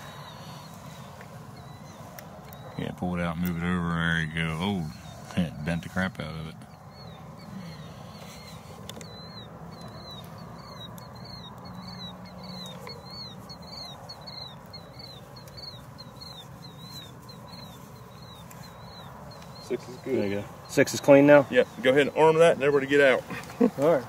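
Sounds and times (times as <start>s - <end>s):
low background hum: 0.0s - 24.0s
small animal chirping: 6.6s - 22.0s.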